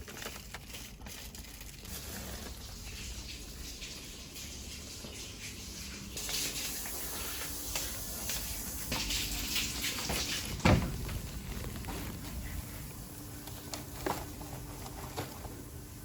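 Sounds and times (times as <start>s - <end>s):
loud thump: 10.6s - 11.2s.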